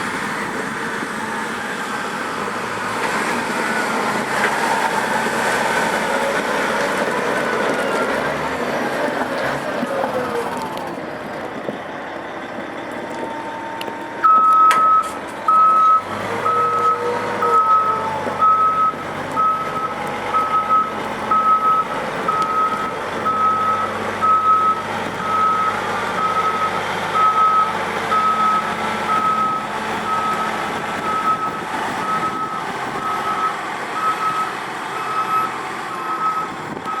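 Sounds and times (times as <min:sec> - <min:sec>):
truck engine running: 0:00.0 - 0:37.0
reverse alarm beeping: 0:14.2 - 0:30.5.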